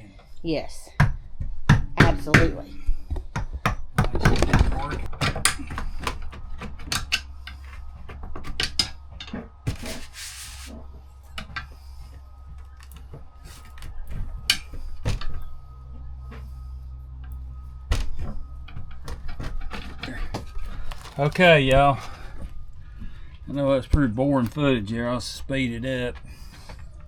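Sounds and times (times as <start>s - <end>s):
steady low hum: 0.0s - 27.0s
knocks and scrapes on wood: 1.4s - 11.8s.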